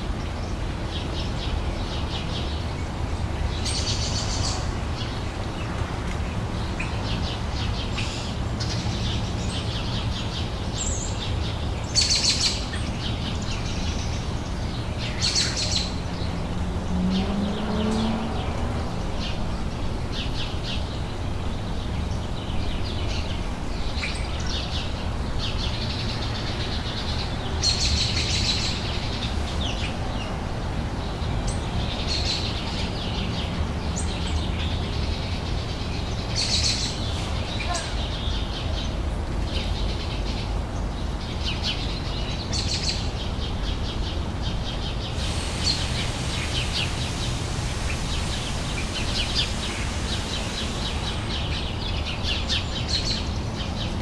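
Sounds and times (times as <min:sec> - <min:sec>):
small birds chirping: 0:00.0 - 0:54.0
faint high hiss: 0:45.2 - 0:52.6.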